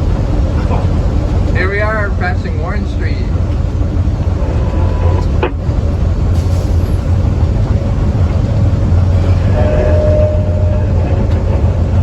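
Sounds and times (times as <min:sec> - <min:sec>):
railway car rolling on track: 0:00.0 - 0:12.0
thin high tone: 0:09.3 - 0:12.0.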